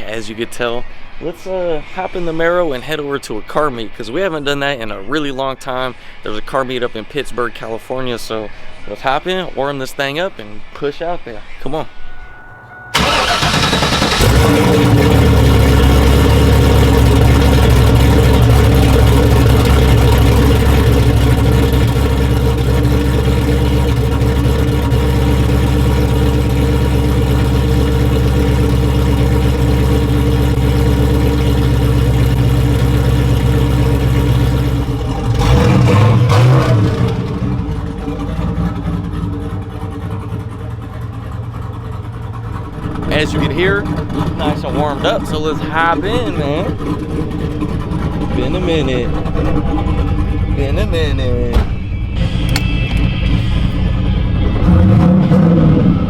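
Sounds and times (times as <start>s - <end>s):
car engine idling: 11.7s - 56.0s.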